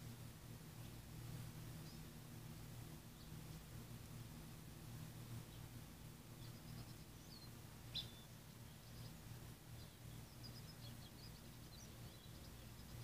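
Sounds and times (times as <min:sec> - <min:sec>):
low steady hum: 0:00.0 - 0:13.0
high bird chirps: 0:06.4 - 0:08.3.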